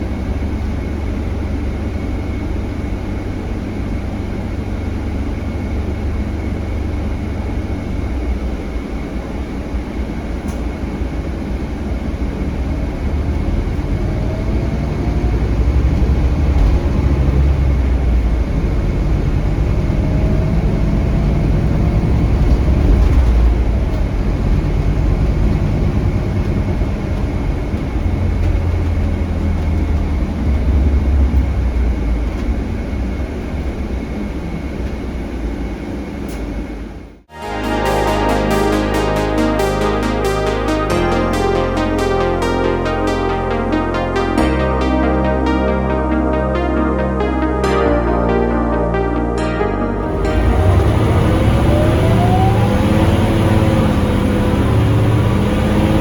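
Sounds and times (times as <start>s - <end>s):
bus diesel engine running: 50.1s - 56.0s.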